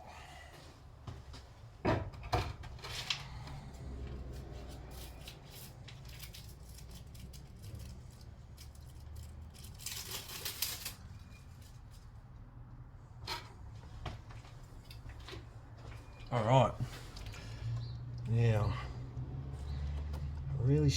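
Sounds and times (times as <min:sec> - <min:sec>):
scraping rustle: 0:04.3 - 0:12.1.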